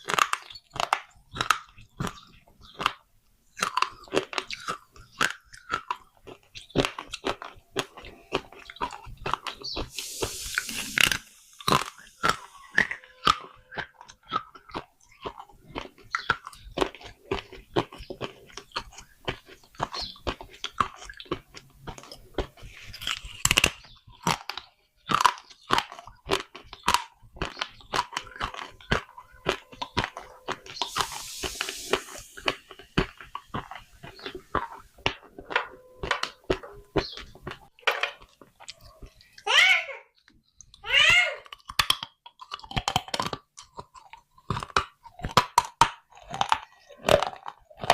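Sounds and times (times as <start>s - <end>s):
crunching clay pots: 0.0s - 39.5s, 40.1s - 47.9s
gritty hiss: 9.9s - 12.8s, 30.8s - 33.0s.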